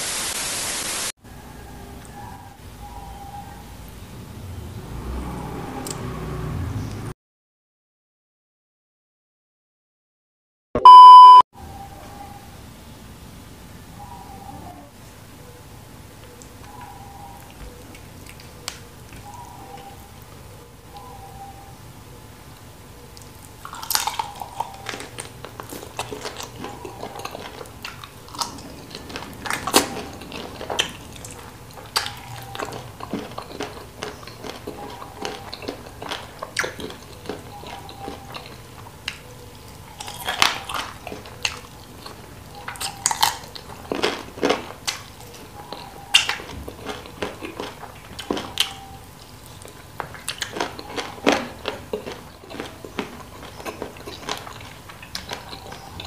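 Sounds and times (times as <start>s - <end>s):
wet chewing: 16.2s - 21.1s, 22.5s - 56.0s
crunches of chewed bone: 23.1s - 56.0s.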